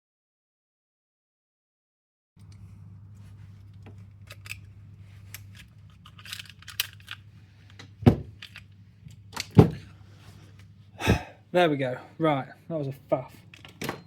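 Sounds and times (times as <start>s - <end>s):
clicks and scrapes of rifle parts: 2.4s - 10.7s.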